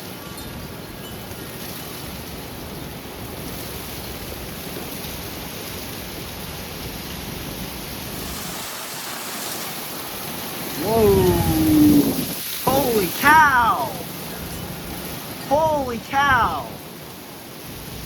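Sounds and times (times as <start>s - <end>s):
heavy rain: 0.0s - 18.0s
strong wind gusts: 2.0s - 18.0s
low thunder rumble: 10.0s - 12.6s.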